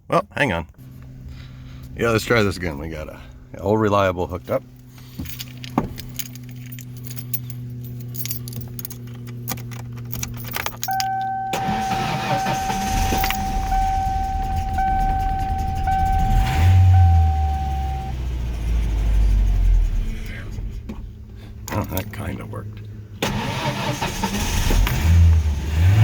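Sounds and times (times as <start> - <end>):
car engine rumbling: 0.5 - 26.0
car engine cranking: 4.5 - 26.0
warning chime beeping: 10.9 - 18.2.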